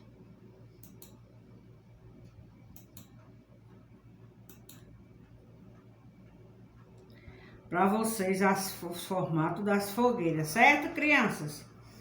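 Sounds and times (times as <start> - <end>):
low room hum: 0.0 - 12.0
computer mouse clicking: 0.8 - 1.2, 2.2 - 7.1.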